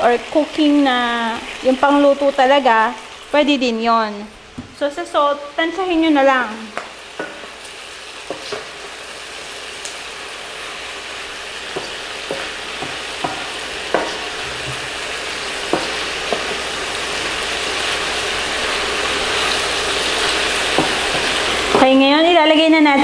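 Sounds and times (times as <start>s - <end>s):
meat sizzling in oil: 0.0s - 23.0s
spatula knocking against pan: 11.7s - 14.9s, 15.7s - 16.6s, 20.7s - 22.0s.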